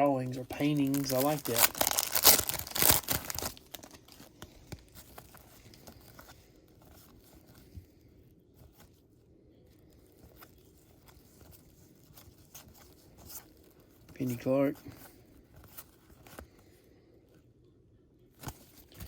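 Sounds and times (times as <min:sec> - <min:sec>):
cards clicking and rustling: 0:00.4 - 0:07.7.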